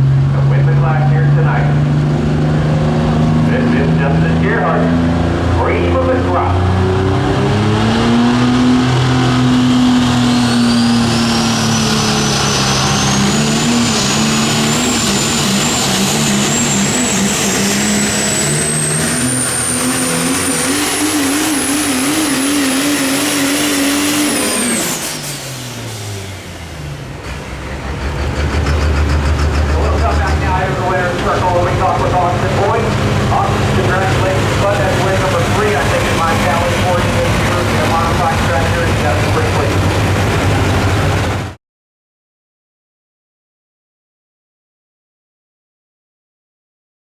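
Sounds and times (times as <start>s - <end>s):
diesel truck engine under load: 0.0s - 41.6s
high turbo whistle: 9.0s - 27.0s.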